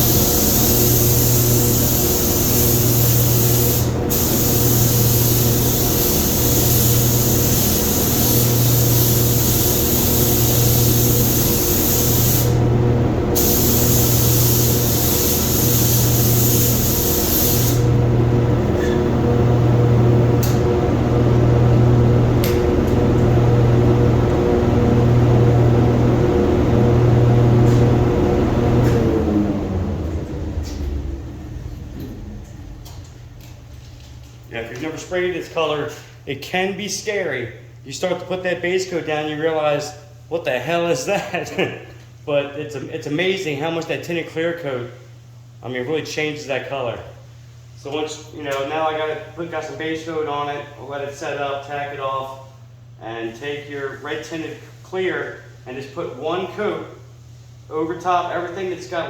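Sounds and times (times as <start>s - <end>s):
paint spray gun hissing: 0.0s - 12.6s, 13.4s - 18.0s
machine hum with pulsing drone: 0.0s - 34.4s.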